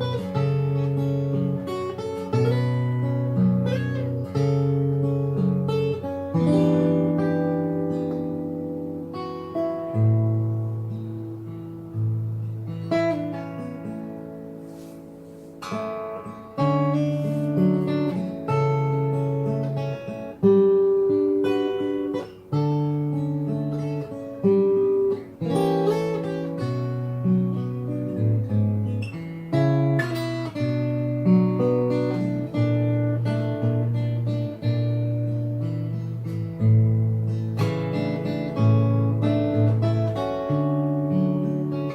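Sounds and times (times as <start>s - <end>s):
fingerstyle acoustic guitar: 0.0s - 41.9s.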